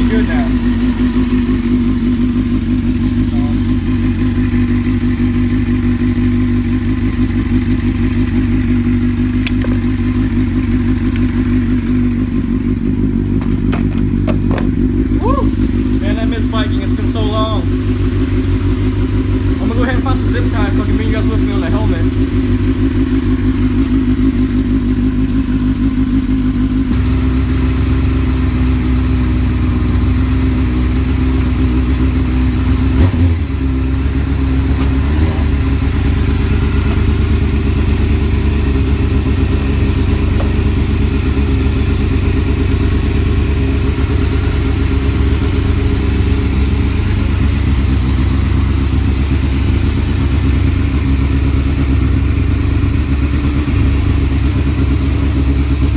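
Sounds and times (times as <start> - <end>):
motorcycle engine idling: 0.0 - 55.9
brief thump: 13.3 - 15.1.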